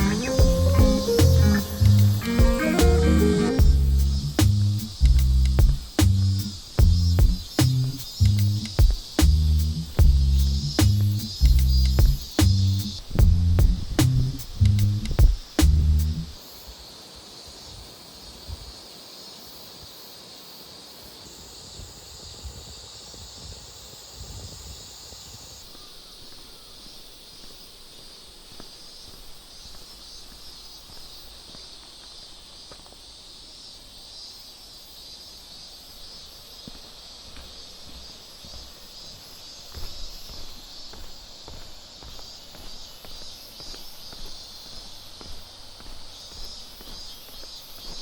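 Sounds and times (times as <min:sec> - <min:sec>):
higher hiss: 0:00.0 - 0:16.8
steady high hiss: 0:00.0 - 0:48.0.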